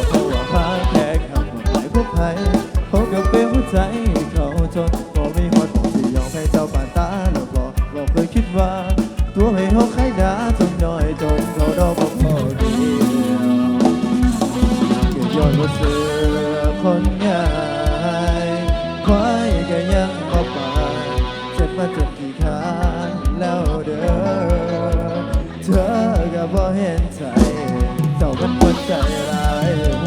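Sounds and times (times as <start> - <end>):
fast kick-drum beat: 0.0 - 30.0
keyboard or guitar melody: 0.0 - 30.0.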